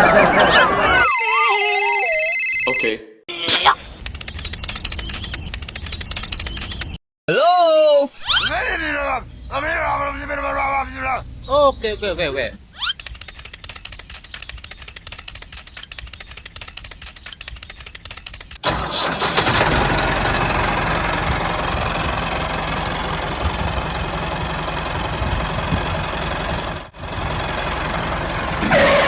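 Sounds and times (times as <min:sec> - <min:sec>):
small tractor engine running: 0:18.6 - 0:29.0.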